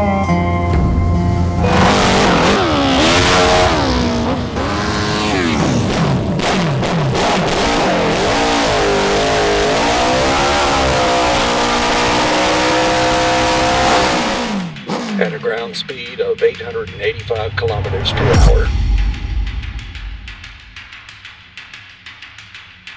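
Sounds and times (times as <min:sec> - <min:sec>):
dirt bike engine revving: 0:01.5 - 0:15.6.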